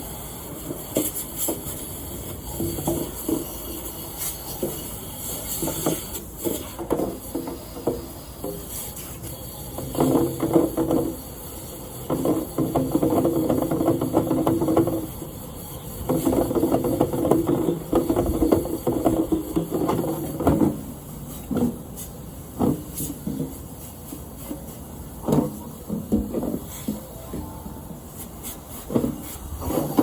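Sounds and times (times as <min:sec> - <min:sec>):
knocks and clunks: 0:16.1 - 0:21.8, 0:22.6 - 0:23.6, 0:24.4 - 0:27.6, 0:28.9 - 0:30.0
rasping scraping and rattling: 0:28.2 - 0:30.0.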